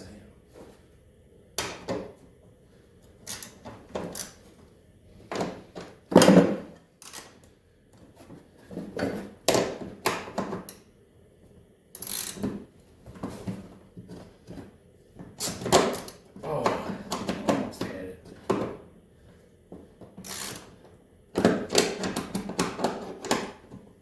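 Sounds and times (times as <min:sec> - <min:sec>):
wrench clicking and clanking on metal: 0:03.2 - 0:04.4, 0:07.0 - 0:07.4, 0:12.0 - 0:12.4, 0:20.2 - 0:20.7.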